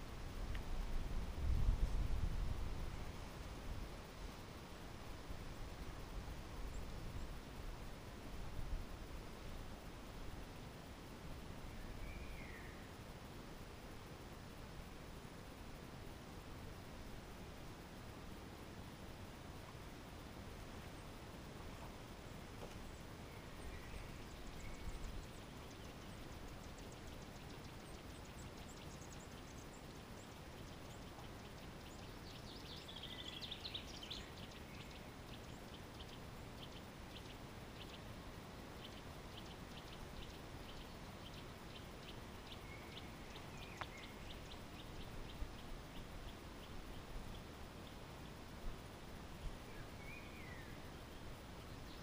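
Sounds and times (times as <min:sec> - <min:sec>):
birdsong: 0:11.4 - 0:13.0, 0:20.8 - 0:52.0
small birds calling: 0:11.5 - 0:13.0, 0:20.8 - 0:52.0.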